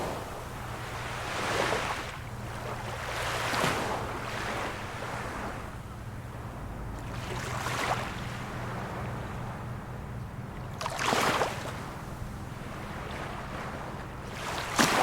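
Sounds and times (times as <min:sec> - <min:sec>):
small waves washing: 0:00.0 - 0:15.0
steady low hum: 0:00.0 - 0:15.0.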